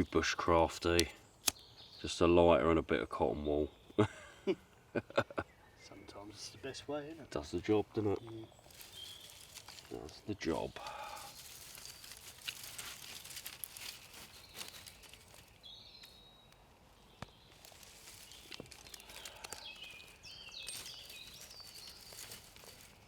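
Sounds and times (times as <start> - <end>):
small birds singing: 0.0 - 23.0
light clicks and crackles: 8.2 - 16.6, 17.2 - 23.0.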